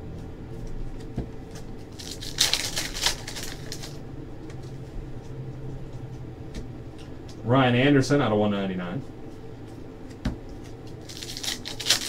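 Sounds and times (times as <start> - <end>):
card wrappers rustling and crinkling: 1.0 - 4.9, 9.7 - 12.0.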